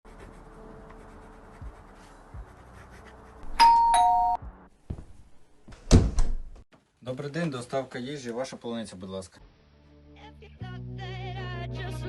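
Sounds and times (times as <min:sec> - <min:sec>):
two-tone doorbell chime: 0:03.6 - 0:04.4.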